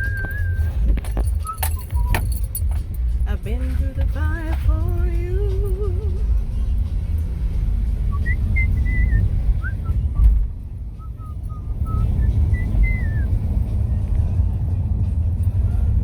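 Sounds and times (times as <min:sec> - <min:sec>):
person whistling a tune: 0:00.0 - 0:02.3, 0:08.1 - 0:13.4
moving car rumble: 0:00.0 - 0:16.0.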